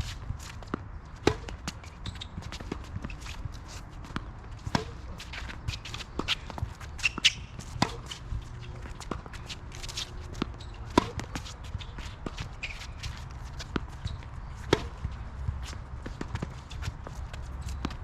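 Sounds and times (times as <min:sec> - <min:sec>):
shoes scuffing on court: 0:00.0 - 0:18.0
tennis ball strikes and bounces: 0:00.5 - 0:18.0.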